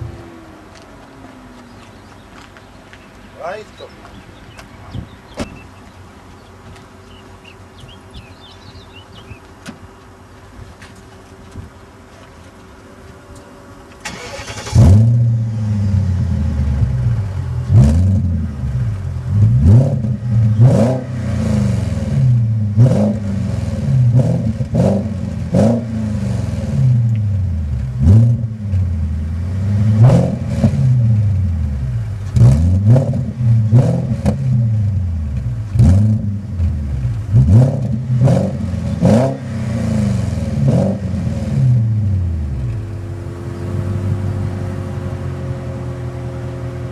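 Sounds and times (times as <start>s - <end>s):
car engine revving: 14.0s - 46.9s.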